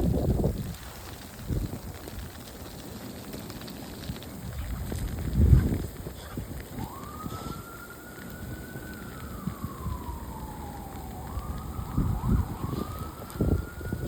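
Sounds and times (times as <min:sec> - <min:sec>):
distant siren wailing: 0:06.5 - 0:14.0.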